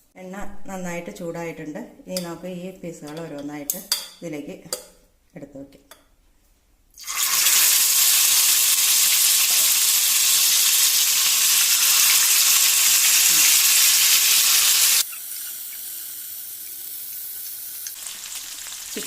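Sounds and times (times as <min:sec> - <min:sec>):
chicken frying in oil: 0:07.0 - 0:19.0.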